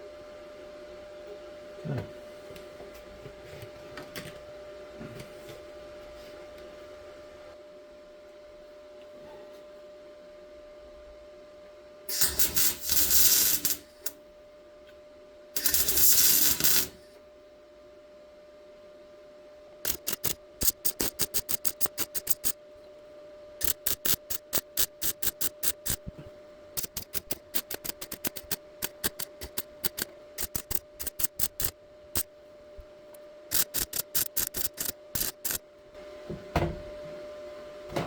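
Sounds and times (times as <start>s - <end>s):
steady hum: 0.0s - 38.0s
welder zapping: 12.1s - 14.2s, 15.6s - 17.1s, 19.8s - 22.6s, 23.6s - 26.1s, 26.7s - 32.3s, 33.5s - 35.6s.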